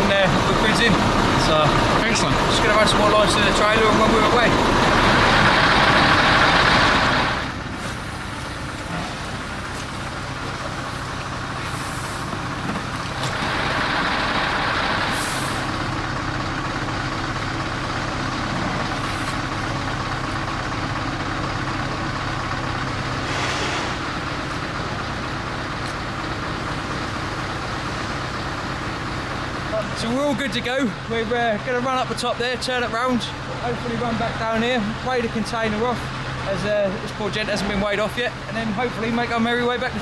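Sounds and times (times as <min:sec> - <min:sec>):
diesel truck engine idling: 0:00.0 - 0:40.0
compressed air hisses: 0:10.8 - 0:12.6, 0:15.1 - 0:15.8.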